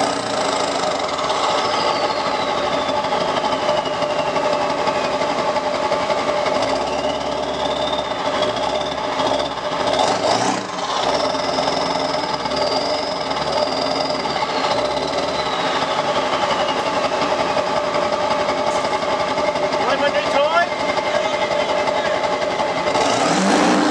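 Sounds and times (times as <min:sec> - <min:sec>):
diesel engine running: 0:00.0 - 0:23.9
turbo whistle: 0:00.9 - 0:05.3, 0:06.6 - 0:10.0, 0:11.2 - 0:17.6.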